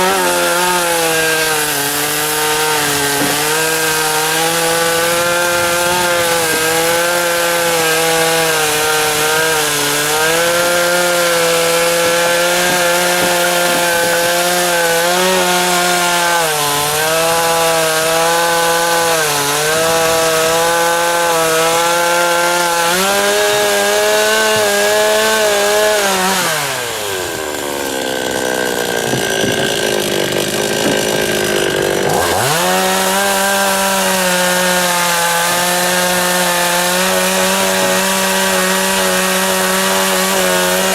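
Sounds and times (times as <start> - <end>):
chainsaw cutting logs: 0.0 - 40.9.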